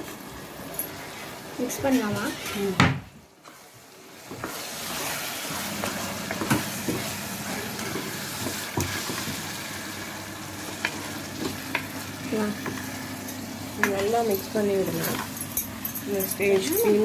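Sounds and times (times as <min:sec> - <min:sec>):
paste sizzling in hot oil: 0:03.4 - 0:13.9.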